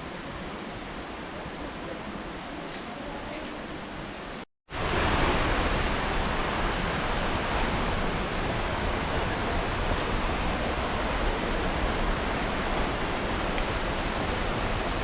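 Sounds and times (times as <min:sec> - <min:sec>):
waterfall rushing: 0:04.8 - 0:15.0.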